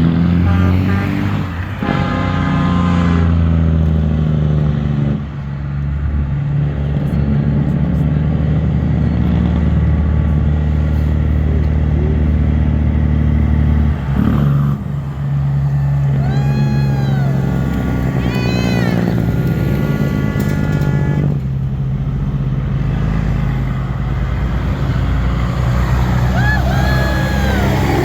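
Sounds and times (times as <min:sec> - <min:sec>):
diesel truck engine rumbling: 0:00.0 - 0:28.0.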